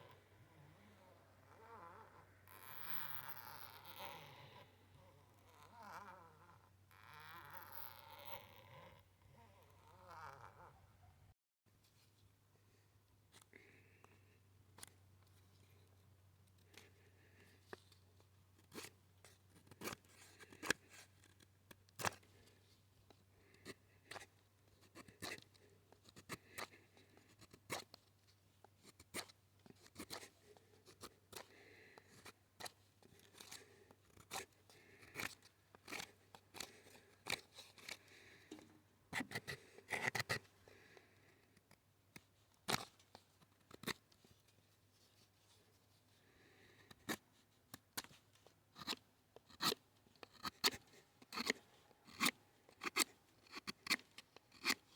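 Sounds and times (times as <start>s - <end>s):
sharp clicks and snips: 46.9s - 54.9s.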